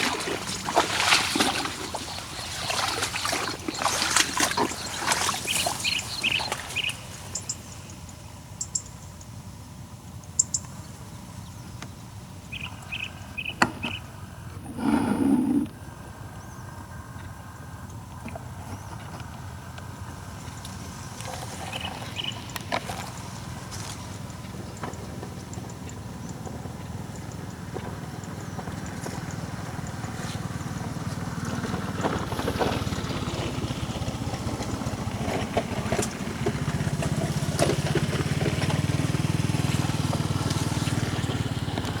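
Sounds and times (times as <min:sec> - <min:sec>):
engine throbbing: 0:19.4 - 0:42.0.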